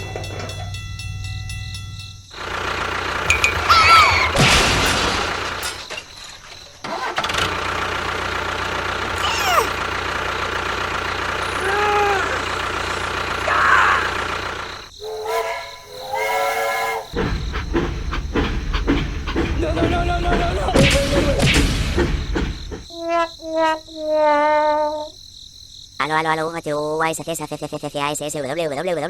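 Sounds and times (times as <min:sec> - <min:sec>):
engine running noise: 0:00.0 - 0:15.0, 0:17.1 - 0:22.9
short gliding whistles: 0:15.0 - 0:17.2
short horn tones: 0:15.0 - 0:17.2.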